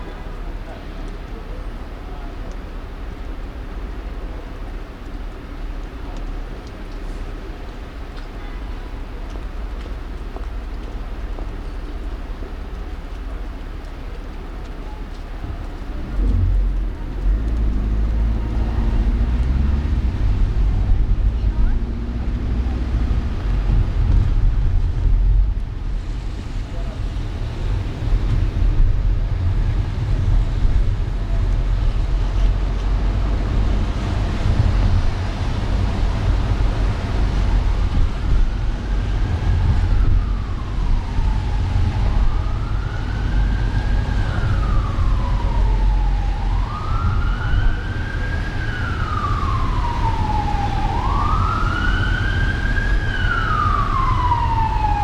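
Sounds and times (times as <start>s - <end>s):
car driving rumble: 0.0s - 55.0s
emergency siren wailing: 10.8s - 20.8s, 32.1s - 55.0s.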